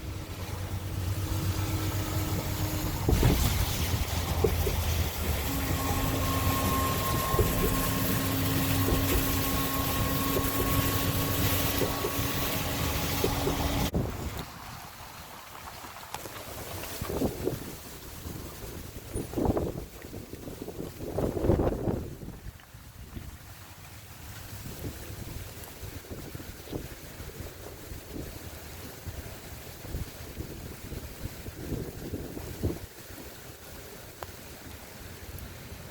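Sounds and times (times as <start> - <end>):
steady mechanical hum: 0.0 - 14.4
storm wind: 0.0 - 23.5, 24.4 - 34.0.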